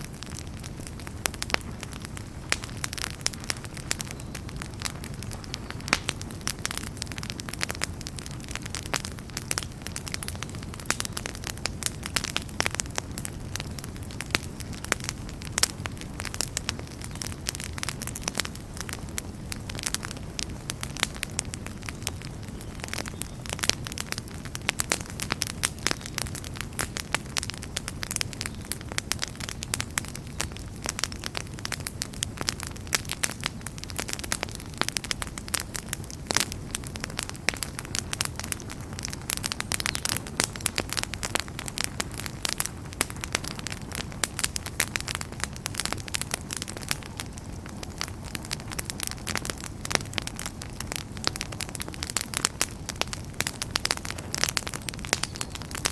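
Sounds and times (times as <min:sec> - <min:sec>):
low rumble of burning: 0:00.0 - 0:55.9
wood fire crackling: 0:00.0 - 0:55.9.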